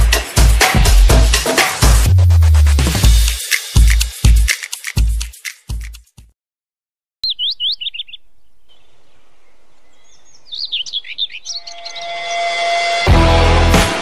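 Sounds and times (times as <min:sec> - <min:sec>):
small birds chirping: 0:07.2 - 0:12.1.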